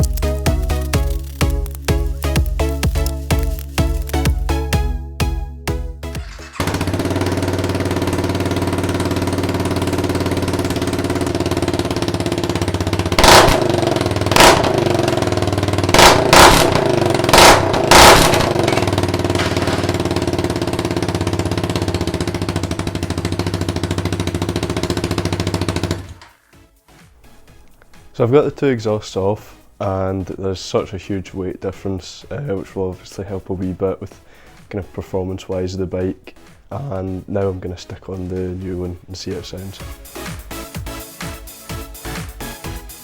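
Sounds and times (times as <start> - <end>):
motorcycle engine idling and revving: 5.7 - 26.4.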